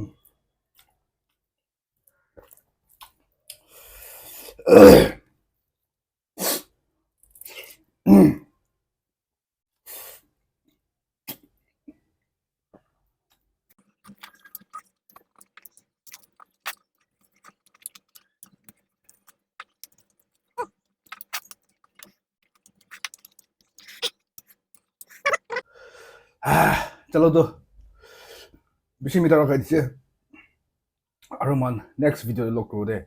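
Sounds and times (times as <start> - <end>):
short breath: 3.6 - 4.6, 25.6 - 26.9, 28.0 - 28.6
chewing and smacking noises: 13.7 - 25.6.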